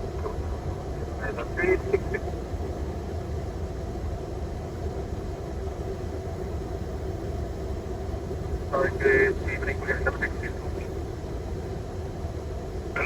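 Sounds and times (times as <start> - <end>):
aircraft engines idling: 0.0 - 3.9, 7.2 - 13.0.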